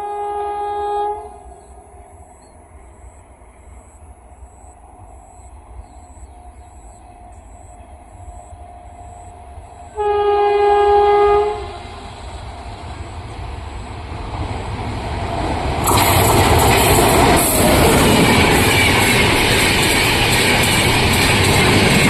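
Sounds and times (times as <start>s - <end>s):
train horn blast: 0.0s - 1.6s, 9.9s - 12.1s
train rushing past: 0.0s - 22.0s.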